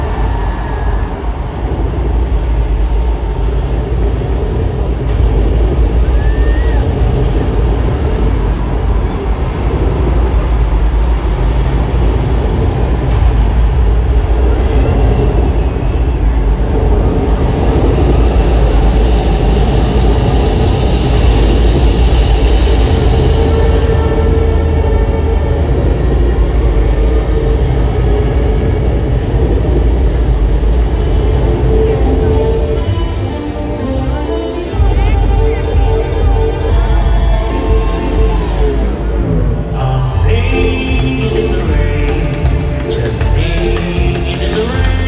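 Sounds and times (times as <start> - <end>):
arena crowd cheering: 0.0 - 45.0
heavy bass rumble: 0.0 - 45.0.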